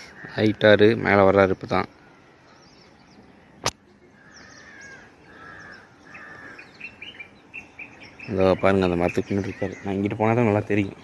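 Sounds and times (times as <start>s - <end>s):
birds calling: 0.0s - 11.0s
sharp click: 3.6s - 3.8s.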